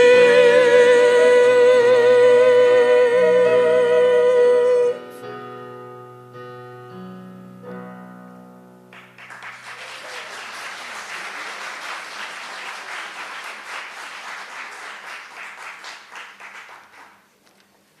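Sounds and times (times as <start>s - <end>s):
piano chords: 0.0s - 9.7s
audience applause: 8.9s - 17.3s.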